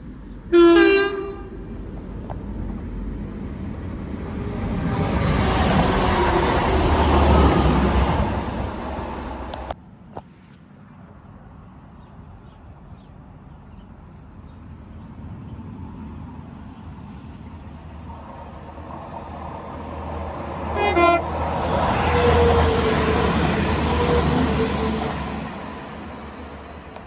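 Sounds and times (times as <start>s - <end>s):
train engine and wheel noise: 0.0s - 27.0s
train horn blast: 0.5s - 1.7s, 20.7s - 22.8s.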